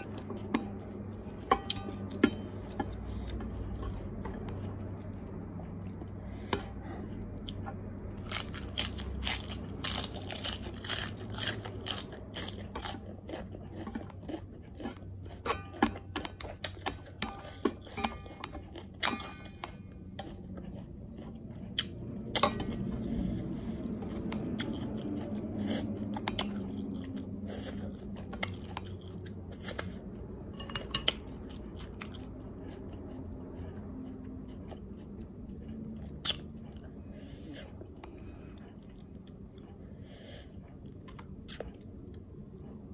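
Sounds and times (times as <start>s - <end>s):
chewing and crunching lettuce: 0.0s - 42.9s
chopsticks clinking on metal tray: 30.5s - 31.3s.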